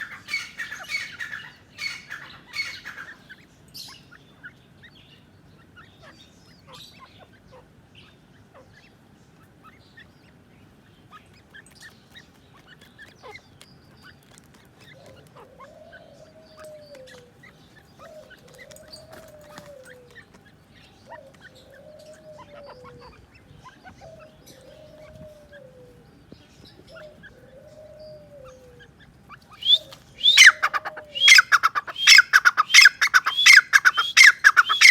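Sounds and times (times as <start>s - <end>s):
francolin calling: 0.0s - 4.1s, 26.8s - 34.9s
faint bird chirps: 0.0s - 34.9s
soft rising and falling call: 29.6s - 34.9s.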